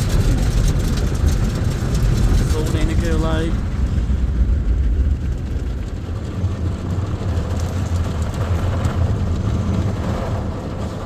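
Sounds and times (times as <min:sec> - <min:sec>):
car wash machine rumbling: 0:00.0 - 0:11.0.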